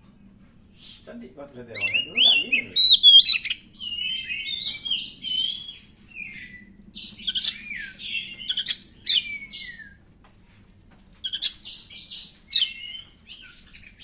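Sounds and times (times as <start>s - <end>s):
bird singing whistled phrases: 1.8s - 6.6s, 7.3s - 10.0s, 12.5s - 13.6s.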